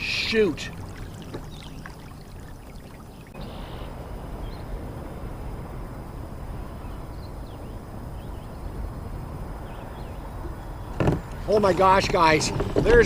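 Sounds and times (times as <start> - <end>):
water trickling and lapping: 0.0 - 4.3.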